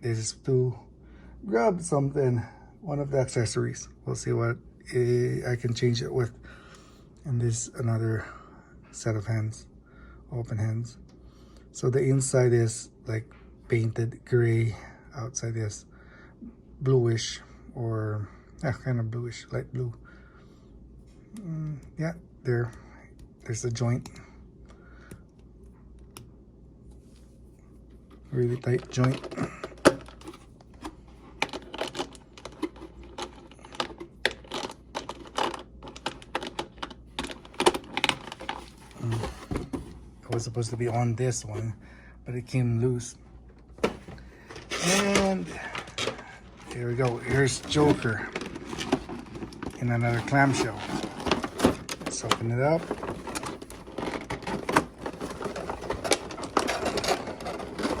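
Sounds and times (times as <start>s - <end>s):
hard plastic parts clicking: 43.8s - 58.0s.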